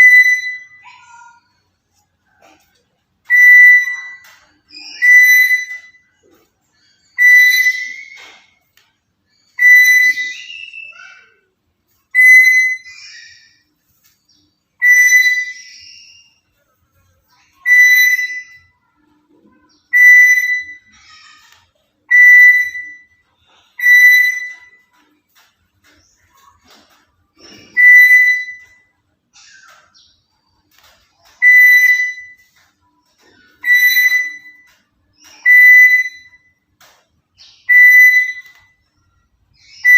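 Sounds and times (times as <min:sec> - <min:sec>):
parrot whistled call: 0:00.0 - 0:01.4, 0:03.3 - 0:06.0, 0:07.1 - 0:08.5, 0:09.5 - 0:11.4, 0:12.1 - 0:13.6, 0:14.8 - 0:16.4, 0:17.6 - 0:18.8, 0:19.9 - 0:21.5, 0:22.1 - 0:24.8, 0:27.6 - 0:29.6, 0:31.4 - 0:32.5, 0:33.5 - 0:36.5, 0:37.4 - 0:38.8, 0:39.6 - 0:39.9.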